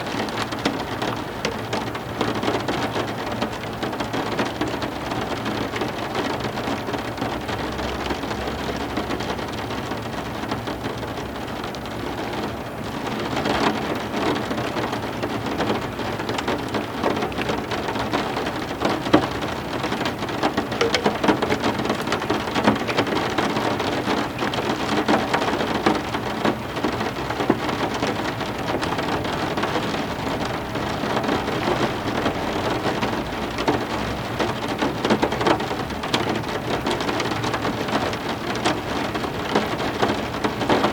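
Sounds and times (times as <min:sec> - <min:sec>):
drops ticking on hard surfaces: 0:20.8 - 0:23.0.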